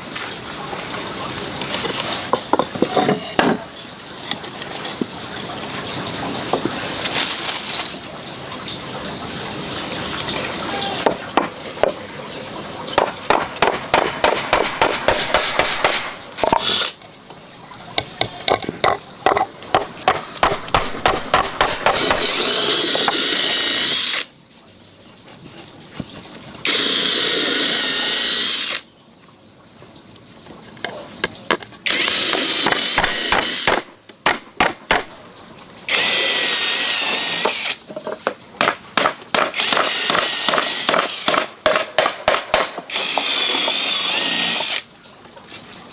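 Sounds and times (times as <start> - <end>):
sharp wooden knocks: 13.0 - 16.8, 17.9 - 23.2, 31.5 - 35.2, 37.4 - 43.8
power tool whine: 14.5 - 17.0, 20.4 - 24.3, 26.7 - 28.9, 31.9 - 33.9, 35.9 - 37.8, 39.5 - 41.4, 42.9 - 44.9.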